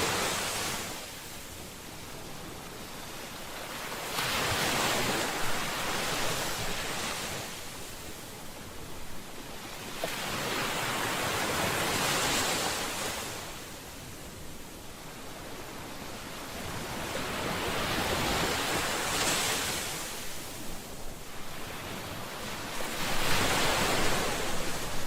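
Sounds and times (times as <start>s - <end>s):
ocean waves breaking on shore: 0.0s - 25.0s.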